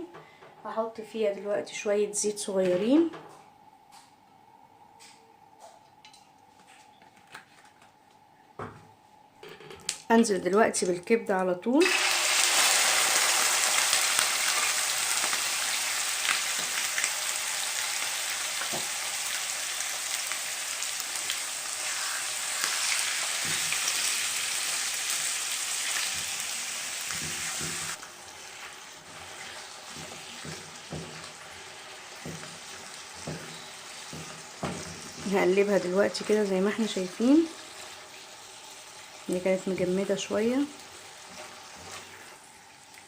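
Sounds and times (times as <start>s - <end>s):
liver sizzling in oil: 11.8s - 43.0s.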